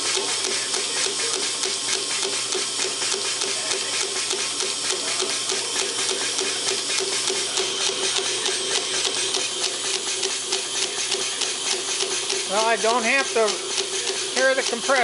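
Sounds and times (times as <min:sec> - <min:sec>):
piston air compressor running: 0:00.0 - 0:15.0.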